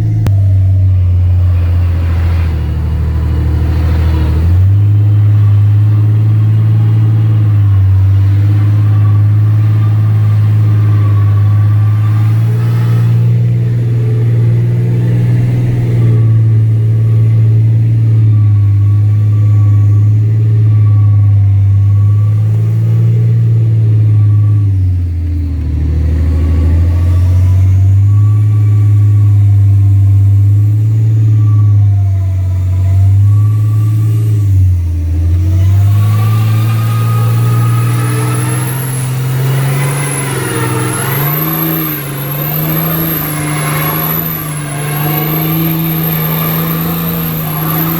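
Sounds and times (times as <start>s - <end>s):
truck engine running: 0.0s - 47.9s
high wavering whistle: 0.8s - 14.2s, 15.2s - 47.9s.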